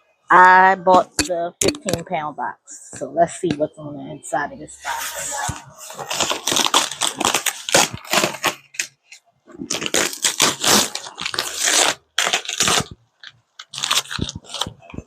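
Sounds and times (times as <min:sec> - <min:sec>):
ripping and crumpling packaging: 0:05.9 - 0:09.0, 0:09.6 - 0:15.0.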